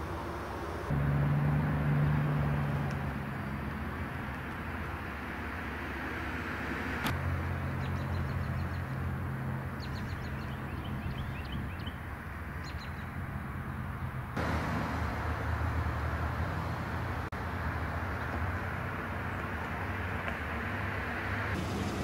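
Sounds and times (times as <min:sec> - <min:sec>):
small birds chirping: 0:07.6 - 0:09.0, 0:09.7 - 0:13.8.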